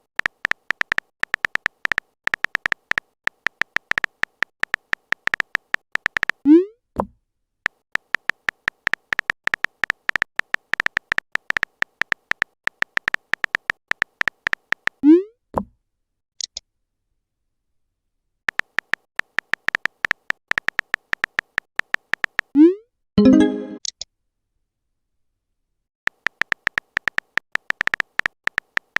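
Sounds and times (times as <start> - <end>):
synthetic typing ticks: 0.1 - 6.4, 7.7 - 15.0, 18.5 - 22.5, 26.1 - 28.9.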